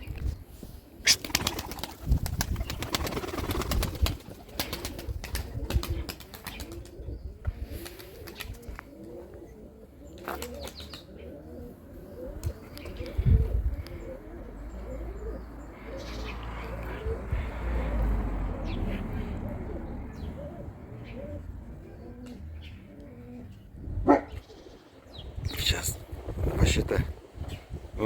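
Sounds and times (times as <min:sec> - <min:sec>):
pigeons cooing: 0:00.0 - 0:28.0
pigeon wings flapping: 0:01.0 - 0:07.0, 0:07.8 - 0:08.7.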